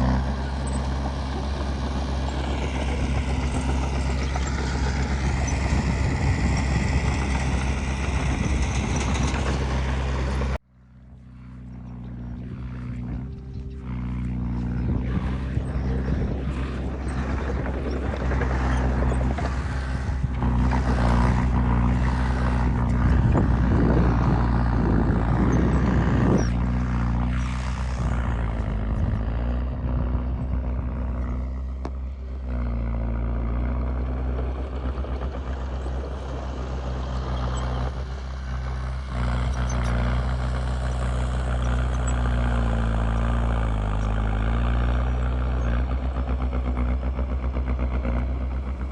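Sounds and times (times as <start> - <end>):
heavy diesel machinery engine: 0.0 - 48.9
rough grinding: 11.2 - 48.9.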